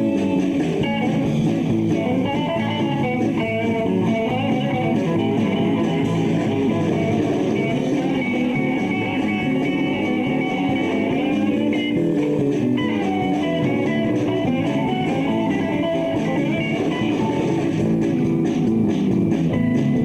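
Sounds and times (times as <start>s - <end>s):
electric guitar: 0.0s - 20.0s
live rock band playing: 0.0s - 20.0s.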